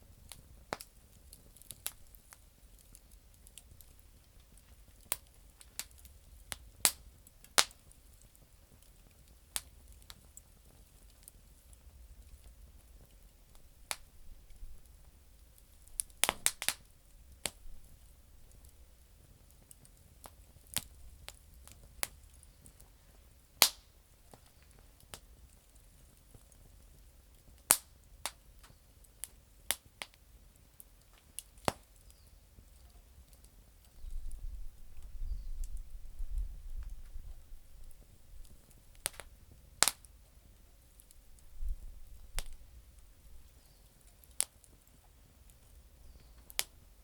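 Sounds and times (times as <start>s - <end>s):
campfire crackling and popping: 0.0s - 47.0s.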